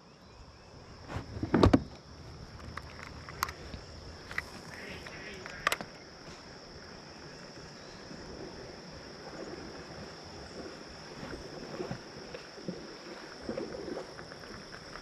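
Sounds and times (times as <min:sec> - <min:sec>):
water sloshing against a hull: 0:00.6 - 0:15.0
high-pitched insect drone: 0:03.7 - 0:15.0.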